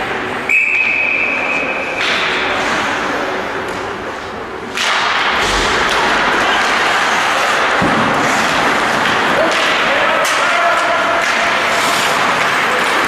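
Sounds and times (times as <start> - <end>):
echoing indoor arena play noise: 0.0 - 13.0
referee's whistle: 0.5 - 1.9.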